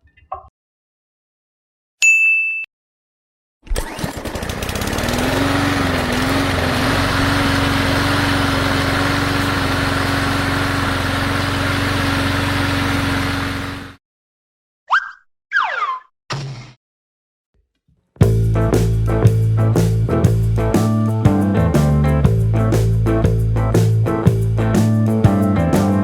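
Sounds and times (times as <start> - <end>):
engine running steadily: 4.2 - 14.0, 18.2 - 26.0.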